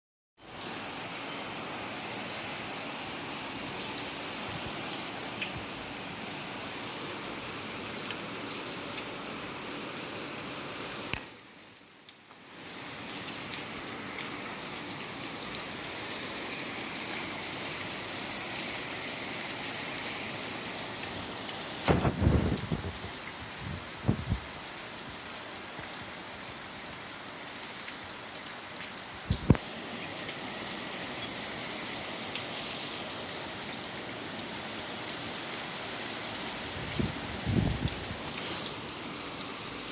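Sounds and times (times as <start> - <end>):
rain falling: 0.4 - 39.9
loud low thumps: 21.9 - 23.0.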